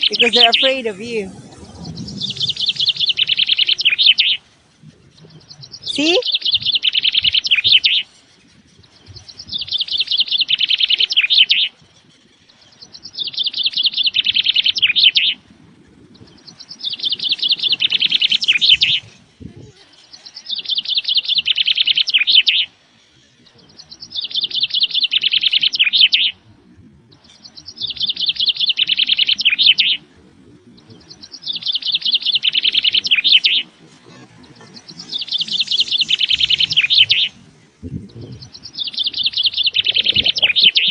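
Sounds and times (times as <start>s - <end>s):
bird chirping in high trills: 0.0s - 15.4s, 16.1s - 26.4s, 27.1s - 30.1s, 30.7s - 40.9s.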